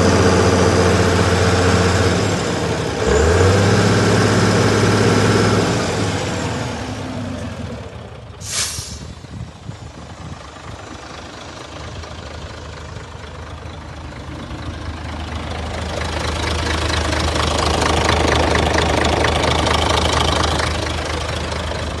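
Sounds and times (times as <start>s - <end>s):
truck diesel engine idling: 0.0s - 22.0s
air brake hiss: 8.4s - 9.3s.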